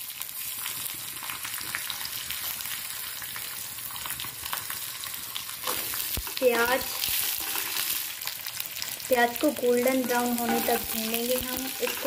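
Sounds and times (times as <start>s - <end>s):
spices sizzling and crackling in oil: 0.0s - 12.0s
wooden spatula stirring: 9.8s - 12.0s.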